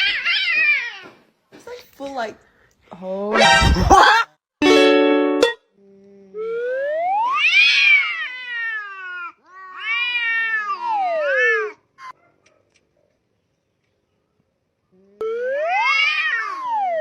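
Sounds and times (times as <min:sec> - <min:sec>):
cat meowing: 0:07.4 - 0:11.8, 0:15.8 - 0:16.7.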